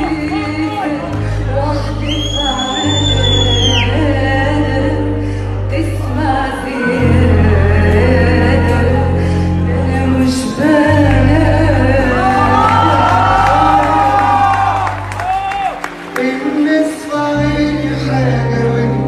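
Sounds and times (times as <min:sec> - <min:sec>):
woman singing: 0:00.0 - 0:15.0
instrumental accompaniment with deep bass: 0:00.0 - 0:19.0.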